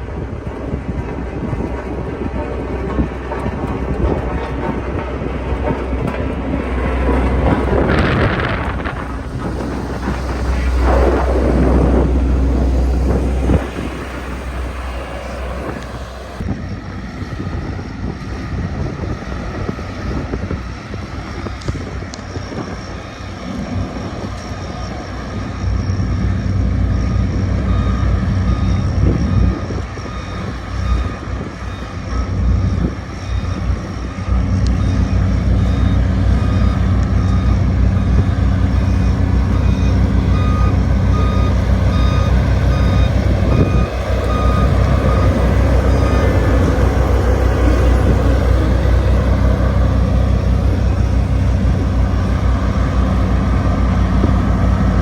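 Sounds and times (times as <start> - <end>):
road roller diesel engine drone: 0.0 - 55.0
reversing alarm beeps: 27.0 - 52.4.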